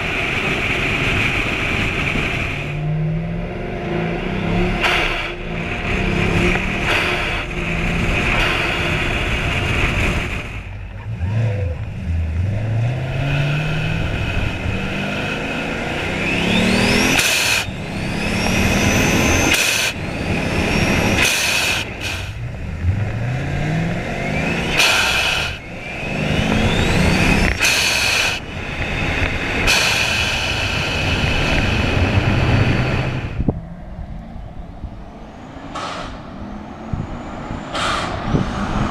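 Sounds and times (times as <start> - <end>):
car engine revving: 0.0 - 38.9
blow-off valve hiss: 24.7 - 25.6, 27.6 - 28.4, 29.6 - 32.2.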